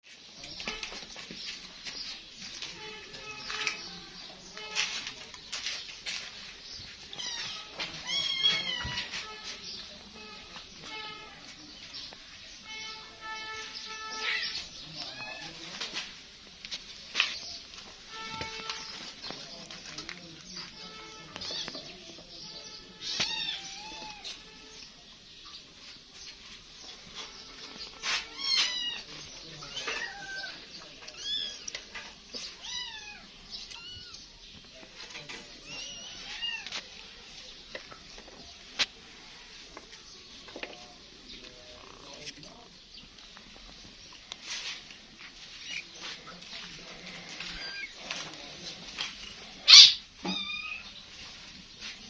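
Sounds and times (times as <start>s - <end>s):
kitten meowing: 49.7s - 50.8s.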